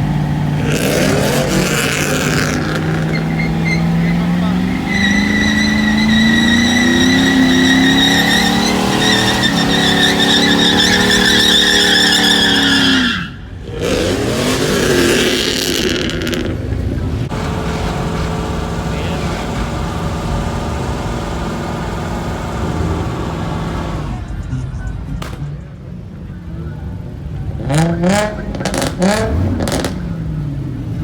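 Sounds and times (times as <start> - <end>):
truck engine revving: 0.0 - 31.0
tire squeal: 0.6 - 16.6, 17.3 - 24.5.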